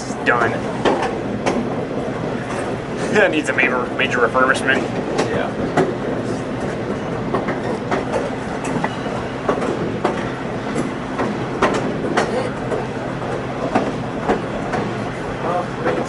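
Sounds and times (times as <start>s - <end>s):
train rumbling on track: 0.0s - 16.0s
wheels clicking on rails: 0.0s - 16.0s.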